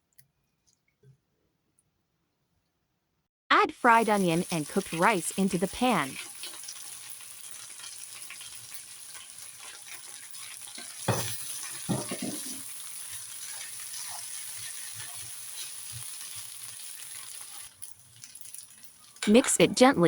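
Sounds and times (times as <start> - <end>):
food sizzling in a frying pan: 3.8 - 20.0
sharp knocks against pan: 11.1 - 11.3, 11.9 - 12.6.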